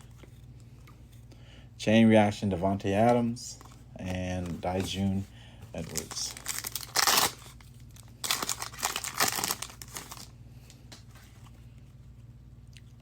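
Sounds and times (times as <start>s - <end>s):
low steady hum: 0.0s - 13.0s
foil wrapper crinkling and tearing: 5.8s - 10.3s.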